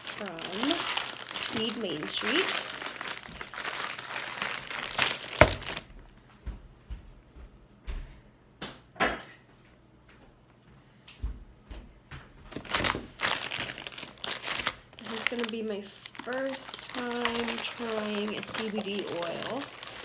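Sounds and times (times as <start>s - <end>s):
package wrapping crinkling: 0.0s - 6.0s, 12.5s - 20.0s.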